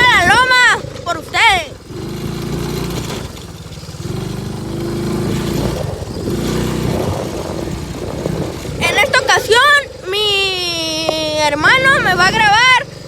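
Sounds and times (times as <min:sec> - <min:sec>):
small motorcycle engine under load: 0:00.0 - 0:13.0.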